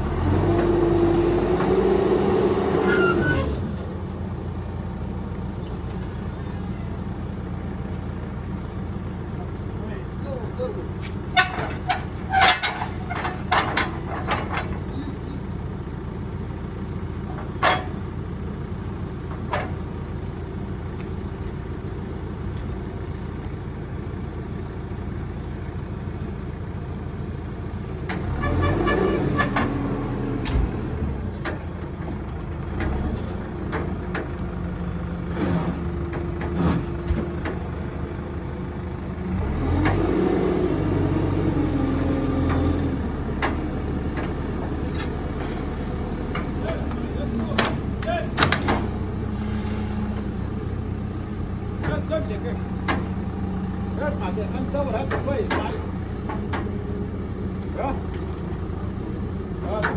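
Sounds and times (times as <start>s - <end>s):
engine running and revving: 0.0s - 4.0s, 28.1s - 34.4s, 35.0s - 38.0s, 39.0s - 53.9s
sharp clicks and knocks: 43.4s - 44.4s, 46.3s - 49.0s, 52.8s - 53.2s, 55.0s - 56.8s.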